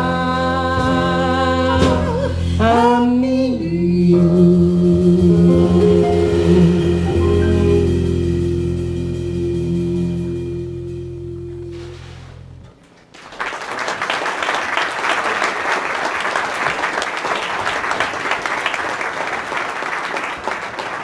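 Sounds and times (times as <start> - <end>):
band's held chord: 4.0 - 12.8
audience applause: 12.9 - 21.0.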